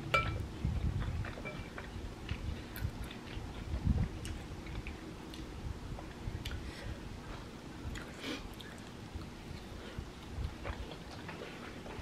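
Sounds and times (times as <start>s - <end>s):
metal spoon clinking on bowl: 0.1s - 0.4s
chewing rice cakes: 0.9s - 6.7s, 7.8s - 12.0s.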